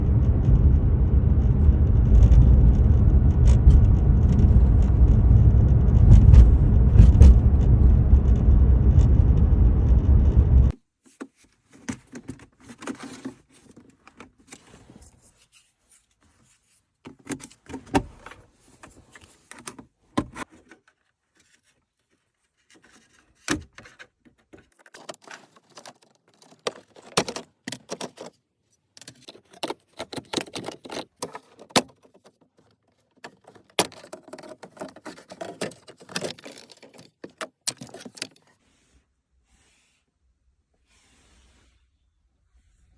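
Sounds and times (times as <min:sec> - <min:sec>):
low rumble inside car cabin: 0:00.0 - 0:10.7
clicks taps and scraping rattles: 0:22.6 - 0:38.6.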